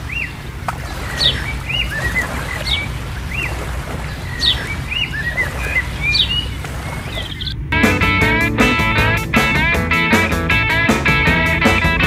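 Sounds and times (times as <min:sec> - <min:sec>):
bird chirping: 0:01.1 - 0:07.6.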